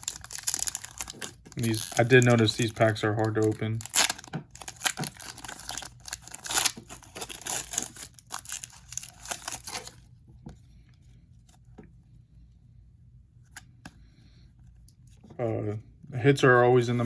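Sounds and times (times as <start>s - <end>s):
wrapper crinkling and tearing: 0.0s - 10.0s.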